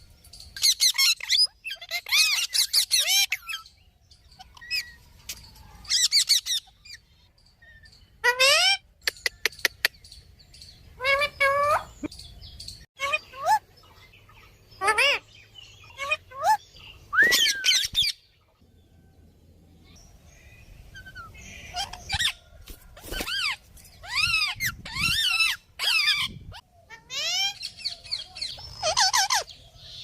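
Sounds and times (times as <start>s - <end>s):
parakeet shrill calls: 0.6s - 3.7s, 5.8s - 7.1s, 14.8s - 15.2s, 15.8s - 16.6s, 17.2s - 18.2s, 21.0s - 22.4s, 23.1s - 29.5s.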